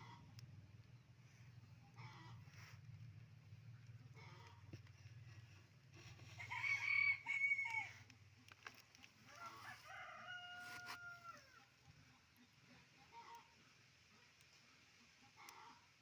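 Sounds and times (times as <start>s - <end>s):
rooster crowing: 6.4s - 8.1s, 9.2s - 11.7s.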